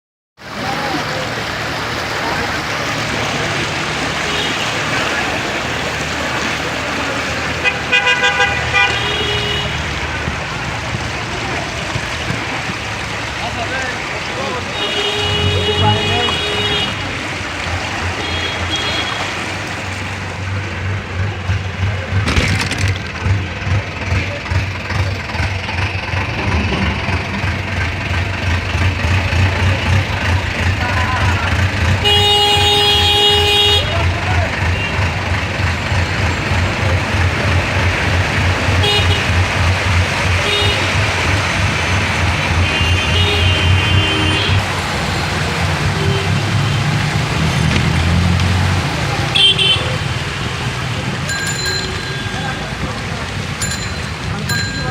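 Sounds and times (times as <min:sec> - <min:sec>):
low engine rumble: 0:00.4 - 0:54.9
water and rain noise: 0:00.4 - 0:54.9
short vehicle horn toots: 0:32.0 - 0:34.0.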